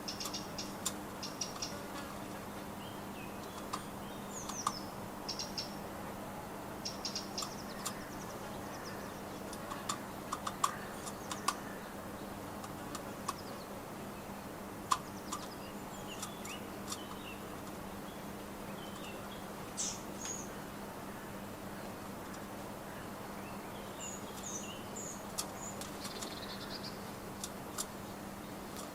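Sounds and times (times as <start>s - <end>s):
small birds chirping: 0.0s - 28.9s
sharp clicks and taps: 9.5s - 11.6s.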